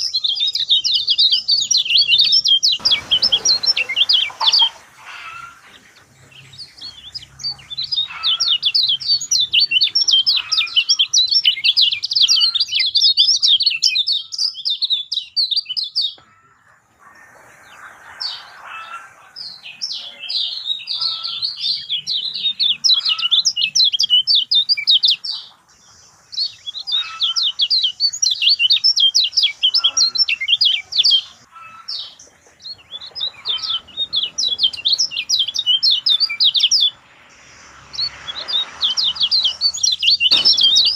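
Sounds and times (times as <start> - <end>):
songbird chattering chirps: 0.0 - 40.9.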